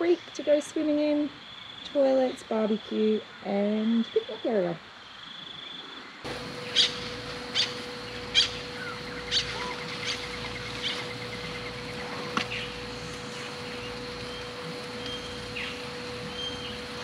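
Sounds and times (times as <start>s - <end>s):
bird chirping: 5.0s - 17.0s
steady low hum: 6.1s - 17.0s
fast bird trill: 6.6s - 12.8s.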